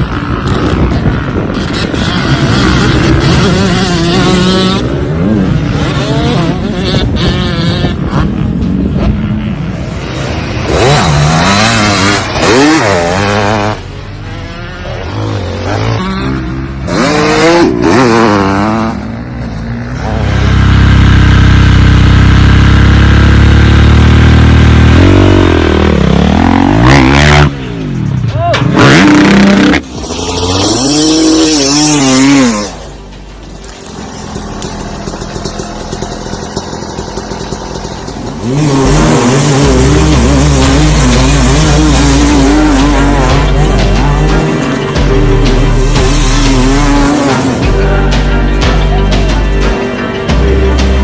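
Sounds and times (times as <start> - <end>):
off-road engines revving: 0.0 - 51.0
loud steady low rumble: 32.7 - 51.0.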